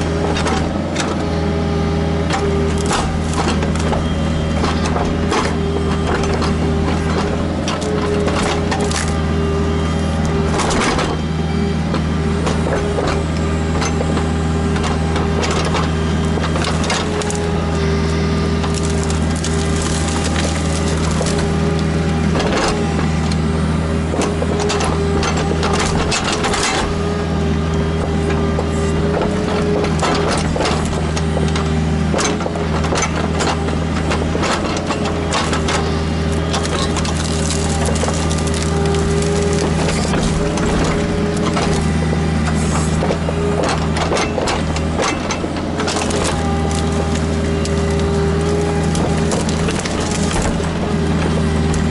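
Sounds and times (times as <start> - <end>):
diesel engine running: 0.0 - 51.9
hydraulic whine: 0.0 - 51.9
wood and roots cracking: 2.2 - 51.9
sharp knocks and cracks: 18.6 - 21.6, 36.4 - 51.9.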